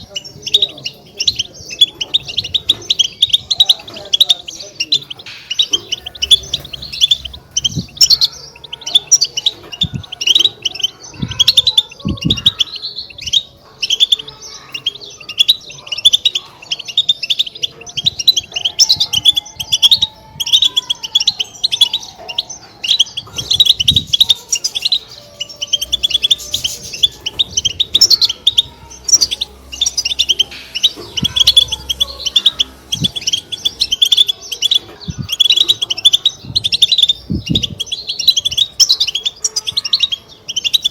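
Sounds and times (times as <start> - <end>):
finch twittering chirps: 0.0 - 40.9
dull low thuds: 11.2 - 12.6, 36.4 - 38.5.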